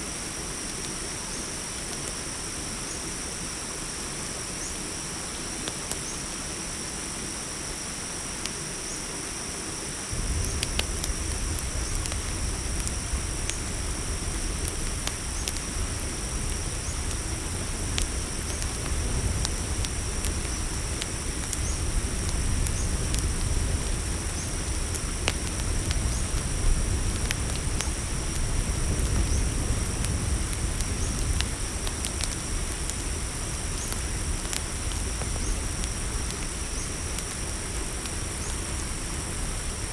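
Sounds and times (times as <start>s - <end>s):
campfire crackling: 0.0s - 8.7s, 9.5s - 39.9s
crickets chirping: 0.0s - 39.9s
low rumble: 10.1s - 31.7s.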